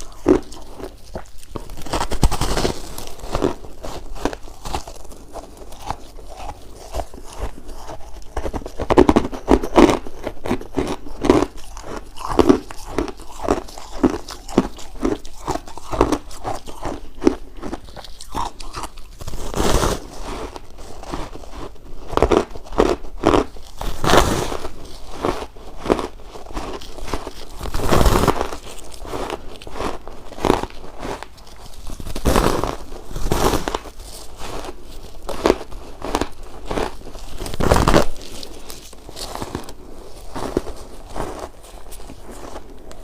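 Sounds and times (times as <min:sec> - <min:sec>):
ice crunching while chewed: 0:00.0 - 0:43.0.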